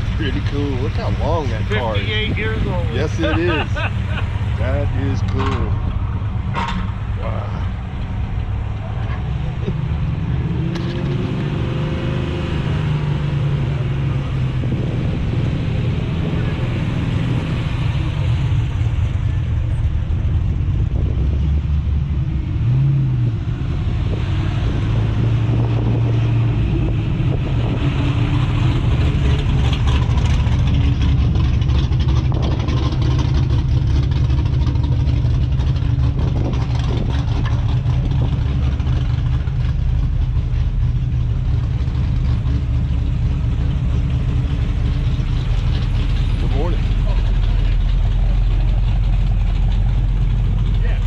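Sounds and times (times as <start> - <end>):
car engine revving: 0.0 - 51.0
car engine rumbling: 0.0 - 51.0.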